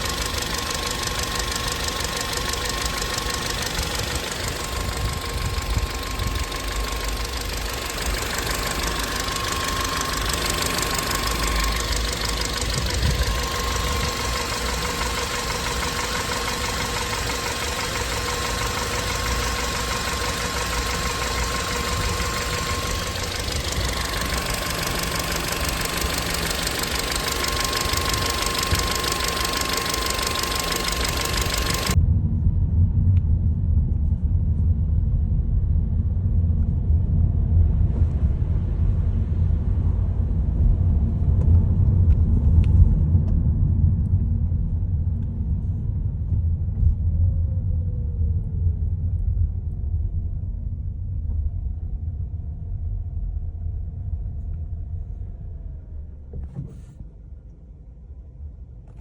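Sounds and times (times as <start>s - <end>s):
car engine whining howl: 0.0s - 32.0s
deep engine rumble: 0.0s - 59.0s.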